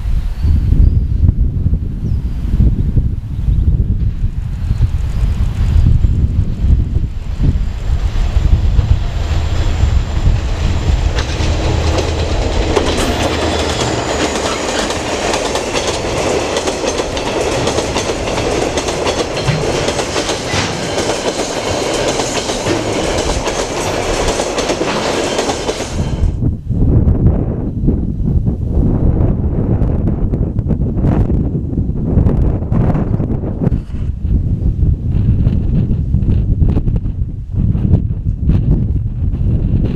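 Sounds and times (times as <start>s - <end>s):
wind rumble on microphone: 0.0s - 24.8s, 25.7s - 39.9s
train wheels clicking over rail joints: 7.4s - 26.4s.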